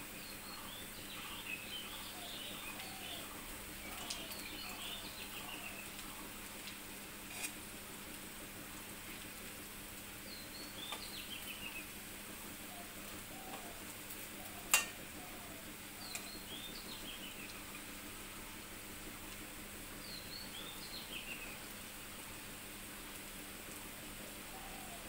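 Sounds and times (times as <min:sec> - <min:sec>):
birds chirping: 0:00.0 - 0:06.4, 0:10.3 - 0:11.9, 0:14.4 - 0:17.8, 0:20.0 - 0:21.7
pakoras frying in oil: 0:00.0 - 0:25.0
spatula clicking against pan: 0:14.7 - 0:15.0.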